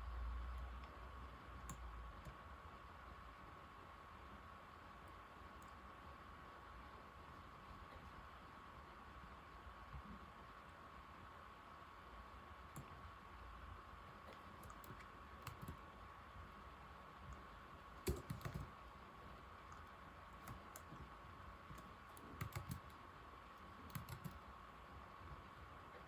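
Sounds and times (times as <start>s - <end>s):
laptop keyboard typing: 1.6s - 2.4s, 12.6s - 13.0s, 14.2s - 15.9s, 17.2s - 19.0s, 19.7s - 24.5s.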